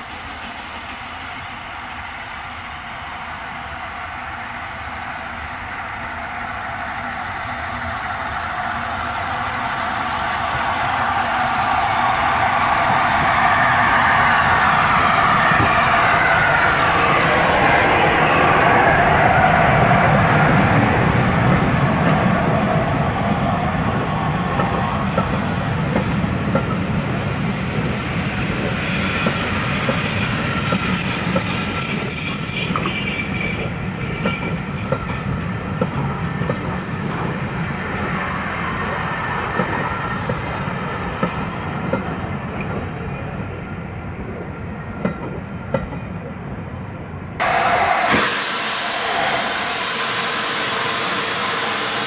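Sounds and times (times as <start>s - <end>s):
train coaches rumbling past: 0.0s - 52.0s
high wheel squeal: 7.7s - 27.4s, 28.2s - 35.6s, 36.2s - 39.2s, 47.4s - 52.0s.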